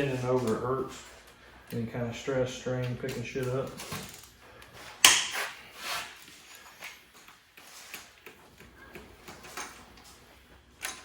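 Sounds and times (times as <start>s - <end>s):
tools clattering and scraping: 3.1s - 11.0s.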